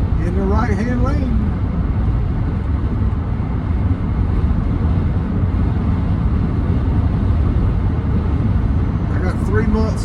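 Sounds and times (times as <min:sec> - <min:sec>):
road tyre and engine rumble in cab: 0:00.0 - 0:10.0.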